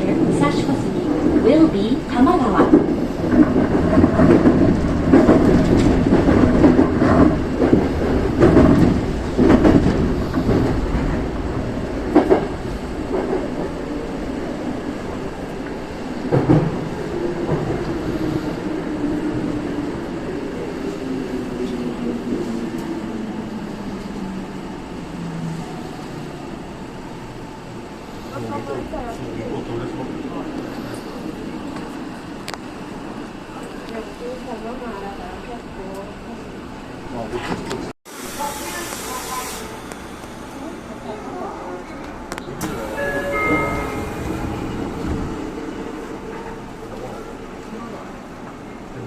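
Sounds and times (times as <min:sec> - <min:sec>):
train wheel clatter: 0:00.0 - 0:13.9, 0:15.0 - 0:18.5.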